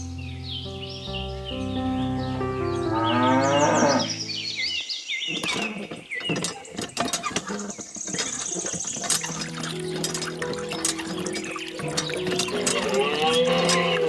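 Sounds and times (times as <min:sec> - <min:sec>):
birds chirping: 0:00.0 - 0:14.0
cow mooing: 0:02.9 - 0:04.2, 0:12.6 - 0:14.0.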